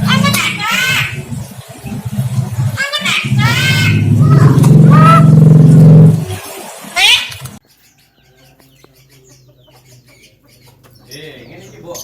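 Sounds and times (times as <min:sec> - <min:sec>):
myna drawn-out call: 0:02.8 - 0:06.1.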